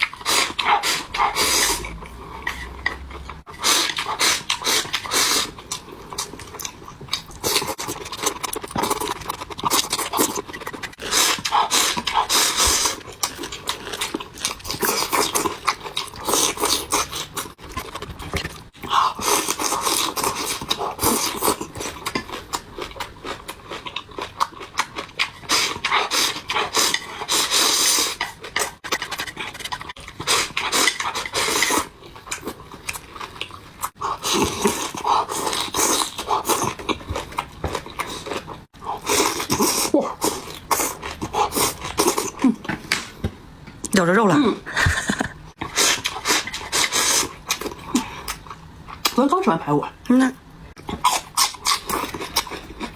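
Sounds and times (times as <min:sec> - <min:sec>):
person chewing and swallowing: 0:00.0 - 0:43.9, 0:50.8 - 0:52.9.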